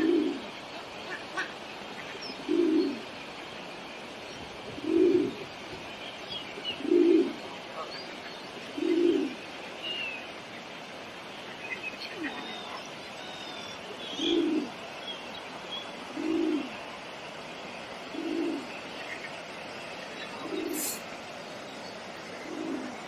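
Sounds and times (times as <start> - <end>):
bird cooing: 0.0 - 0.5, 2.3 - 3.1, 4.7 - 5.5, 6.7 - 7.9, 8.6 - 9.4, 12.1 - 14.8, 16.0 - 16.8, 18.0 - 18.8, 20.2 - 21.0, 22.3 - 23.0
small birds chirping: 0.0 - 23.0.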